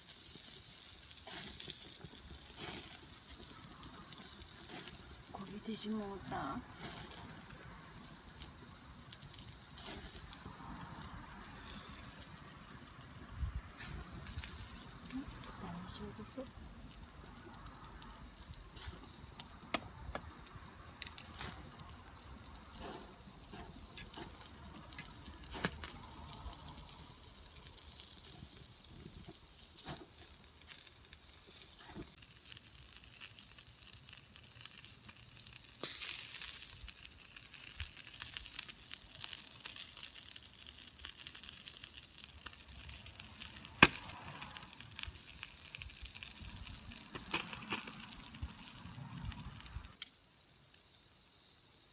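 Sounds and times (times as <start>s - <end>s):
fire hissing: 0.0s - 50.8s
campfire wood crackling: 0.0s - 51.0s
sharp crack: 42.8s - 49.0s.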